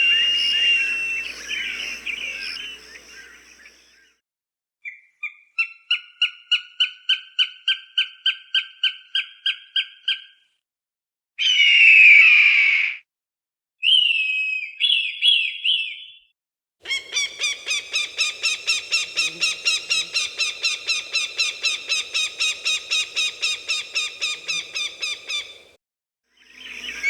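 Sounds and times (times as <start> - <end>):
falcon calls: 0.0 - 3.8, 16.8 - 25.7.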